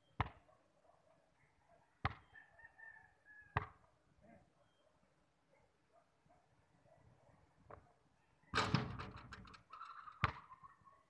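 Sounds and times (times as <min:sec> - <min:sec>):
rooster crowing: 0:02.3 - 0:03.6
basketball bouncing on concrete: 0:10.2 - 0:10.4.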